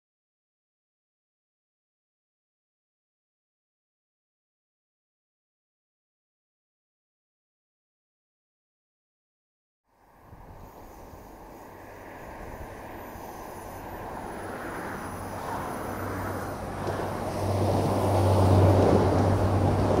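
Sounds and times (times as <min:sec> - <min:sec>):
train engine hum: 0:09.9 - 0:20.0
train wheels rumbling: 0:10.6 - 0:20.0.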